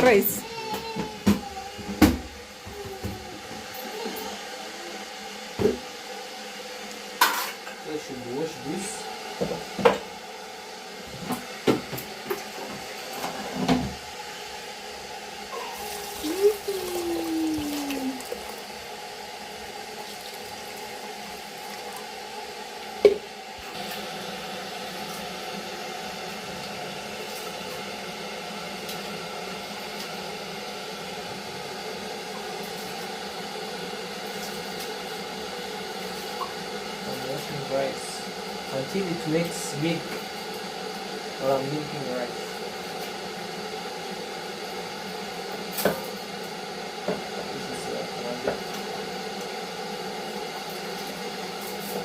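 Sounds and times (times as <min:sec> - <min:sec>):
steady hum: 0:06.8 - 0:27.4.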